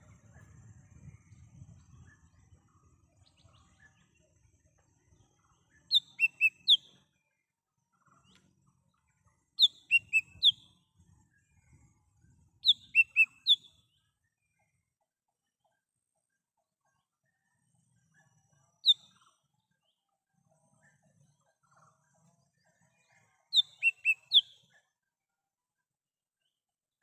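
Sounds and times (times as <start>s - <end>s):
bird whistling calls: 5.9s - 6.9s, 9.6s - 10.6s, 12.6s - 13.7s, 23.6s - 24.6s.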